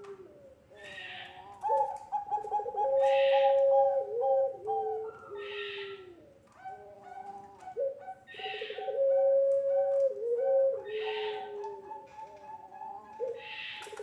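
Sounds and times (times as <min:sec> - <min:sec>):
doves cooing: 0:00.0 - 0:14.0.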